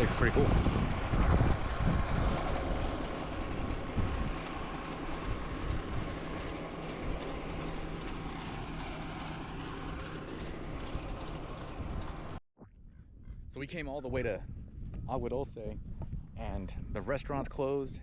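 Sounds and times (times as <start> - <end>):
piston aircraft engine running: 0.0 - 12.4.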